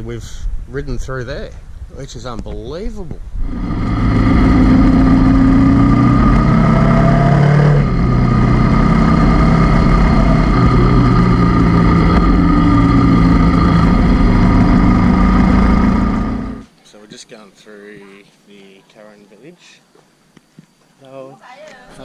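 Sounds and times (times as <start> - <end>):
motorcycle engine running: 3.4 - 16.6.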